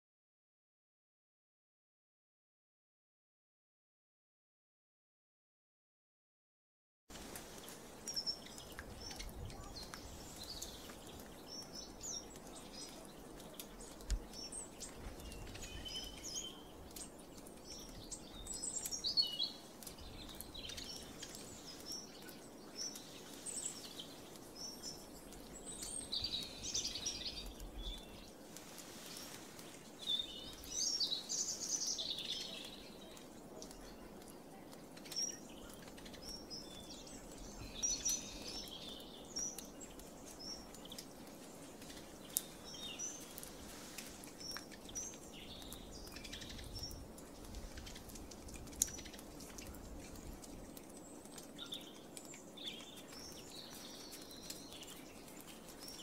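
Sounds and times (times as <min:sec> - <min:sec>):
small birds chirping: 0:07.1 - 0:56.0.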